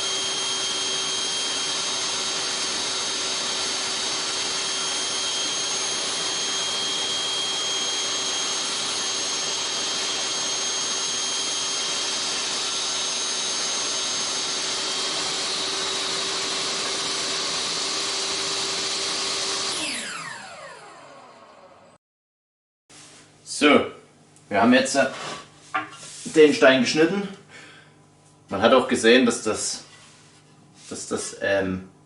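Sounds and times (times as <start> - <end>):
power tool cutting brick: 0.0 - 22.0.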